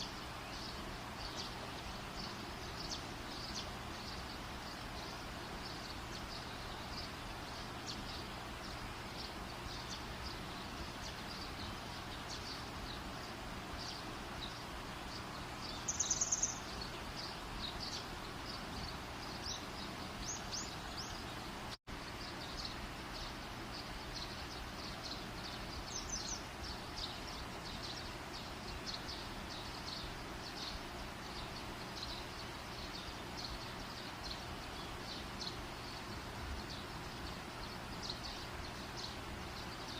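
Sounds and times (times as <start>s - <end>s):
bird trilling and chirping: 13.8s - 21.4s.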